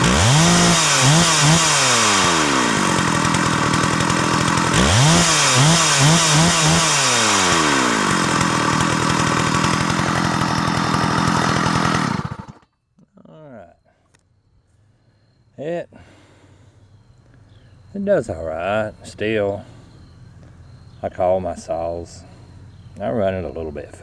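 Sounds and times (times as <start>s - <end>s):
chainsaw clutch noise: 0.0s - 12.7s
chainsaw running: 0.0s - 12.7s.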